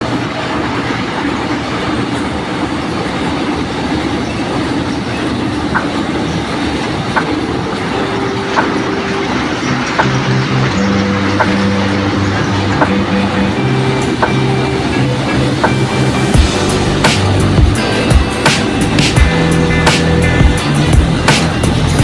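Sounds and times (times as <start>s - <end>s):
train rumbling on rails: 0.0s - 22.0s
sharp metallic sounds: 5.6s - 22.0s.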